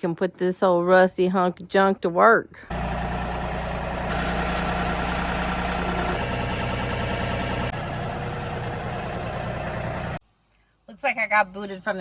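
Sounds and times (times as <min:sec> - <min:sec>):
tractor diesel engine running: 0:02.7 - 0:10.2.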